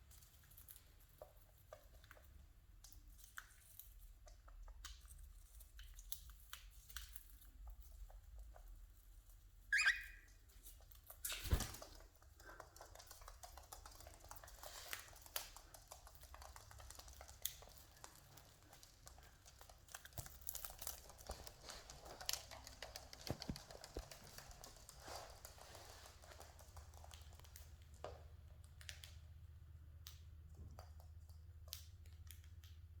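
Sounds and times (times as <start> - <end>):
bird chirp: 9.7 - 10.3.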